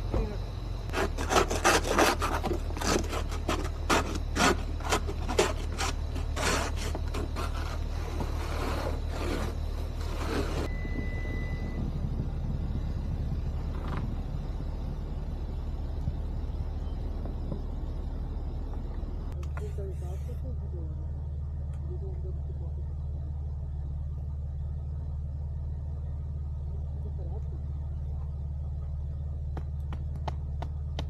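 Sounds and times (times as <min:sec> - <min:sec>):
low engine hum: 0:00.0 - 0:31.0
snow scraping: 0:00.9 - 0:10.7.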